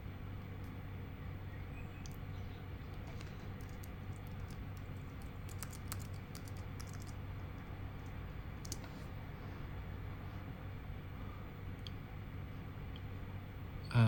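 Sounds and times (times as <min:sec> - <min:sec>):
steady low hum: 0:00.0 - 0:14.0
keyboard typing: 0:02.9 - 0:09.1.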